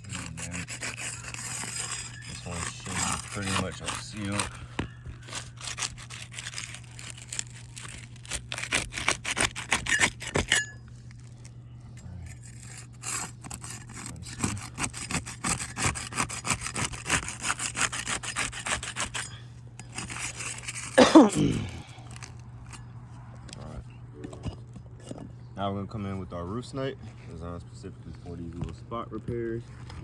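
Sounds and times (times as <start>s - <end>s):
tool scraping roof shingles: 0.0s - 10.6s, 12.5s - 22.4s
steady low hum: 0.0s - 30.0s.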